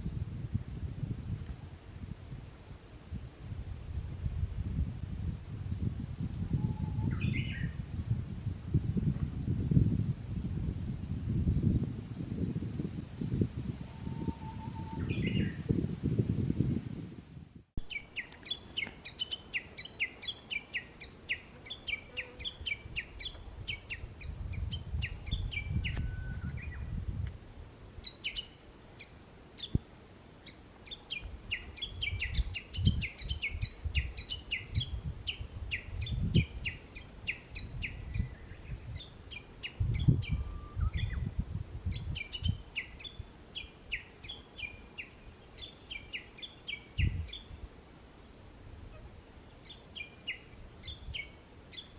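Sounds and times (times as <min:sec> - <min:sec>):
songbirds chirping: 0:17.2 - 0:51.9.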